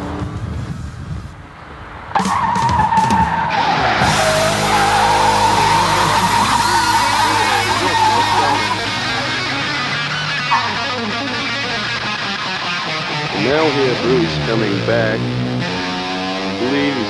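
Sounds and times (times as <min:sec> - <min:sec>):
tyres squealing: 0:02.2 - 0:14.9
engine revving high: 0:03.4 - 0:17.0.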